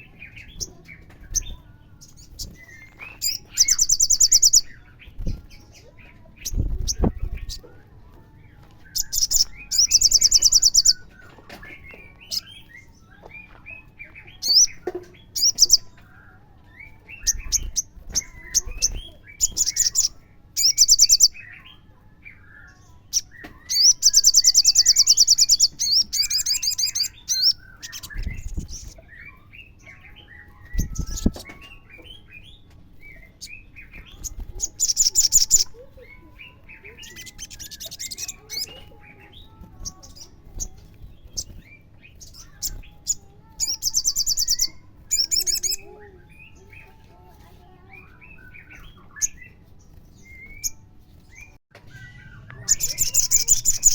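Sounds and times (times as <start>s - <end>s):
sunbird trilling song: 0.0s - 7.7s, 8.5s - 53.9s.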